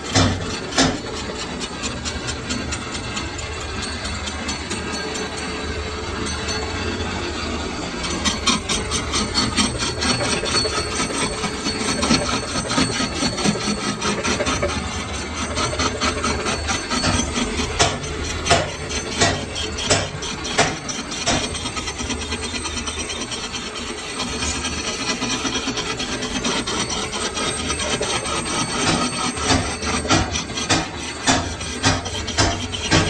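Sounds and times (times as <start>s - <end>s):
sharp knocks: 0.1s - 1.0s, 28.9s - 33.0s
metal tools scraping and clicking: 8.0s - 33.0s.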